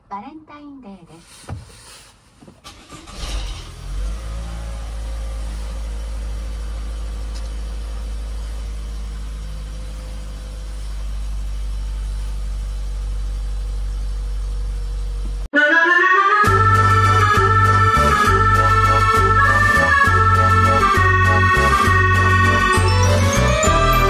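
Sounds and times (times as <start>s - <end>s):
car engine idling: 2.7s - 15.5s.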